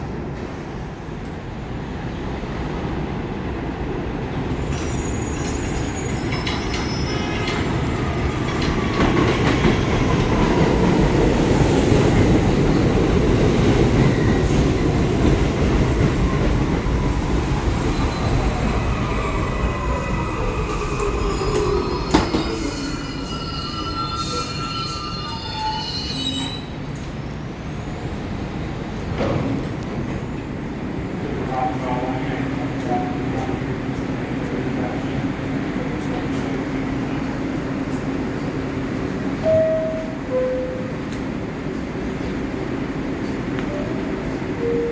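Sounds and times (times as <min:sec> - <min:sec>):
train rumbling on rails: 0:00.0 - 0:44.9
wheel or brake squeals: 0:04.6 - 0:08.5, 0:20.7 - 0:26.8.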